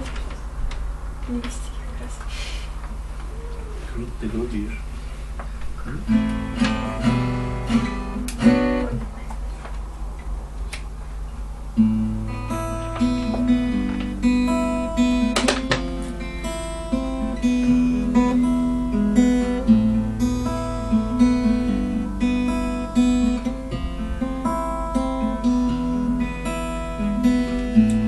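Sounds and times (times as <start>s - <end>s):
acoustic guitar picked melody: 5.8s - 28.0s.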